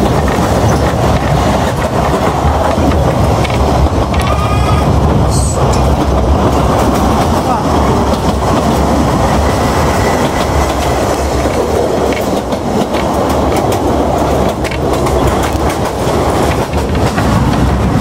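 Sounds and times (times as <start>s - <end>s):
rumble of wheels on rail: 0.0s - 18.0s
clicks from the track: 10.3s - 17.7s.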